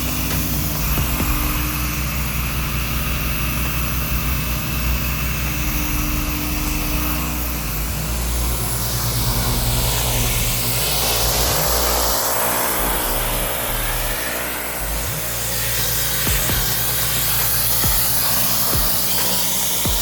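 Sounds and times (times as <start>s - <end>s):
pressure washer engine running: 0.0s - 20.0s
pressure washer spray hiss: 6.9s - 20.0s.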